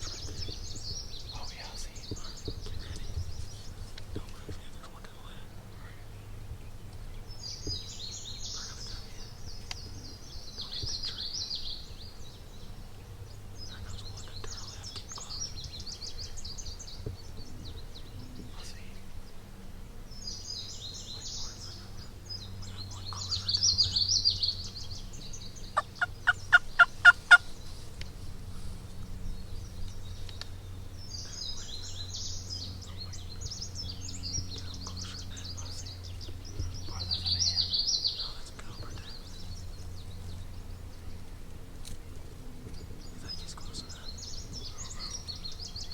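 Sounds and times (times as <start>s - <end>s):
songbird singing: 0.0s - 45.9s
wild turkey yelping: 25.8s - 27.6s.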